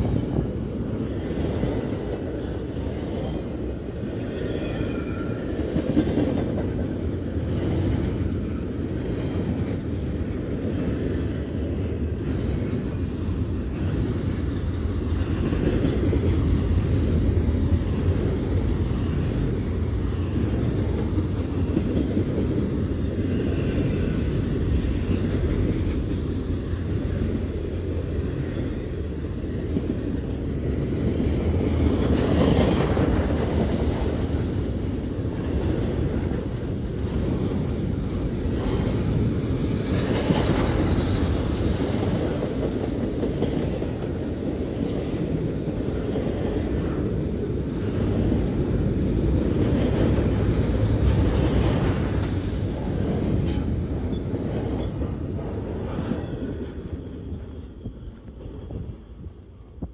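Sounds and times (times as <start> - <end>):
train wheels rumbling on rail: 0.0 - 59.9
faint high wheel squeals: 56.2 - 58.9.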